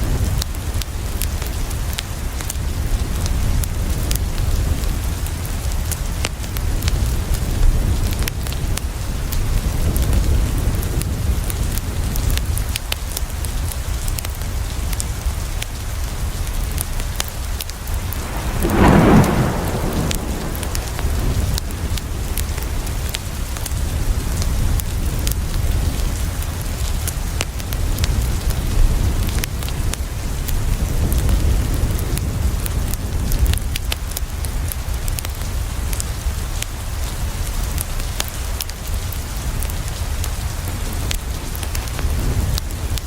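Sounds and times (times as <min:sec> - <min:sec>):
rain pattering on a window: 0:00.0 - 0:43.0
wood fire crackling: 0:17.6 - 0:22.7
low rumble: 0:17.7 - 0:23.0.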